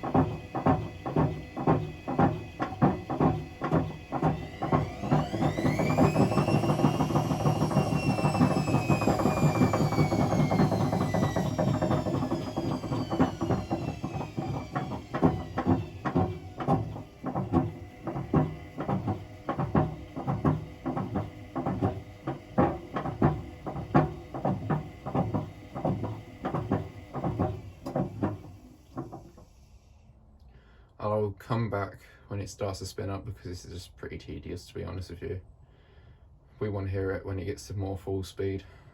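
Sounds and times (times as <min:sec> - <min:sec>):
washing machine drum knocking: 0:00.0 - 0:29.4
washing machine motor whine: 0:00.0 - 0:29.8.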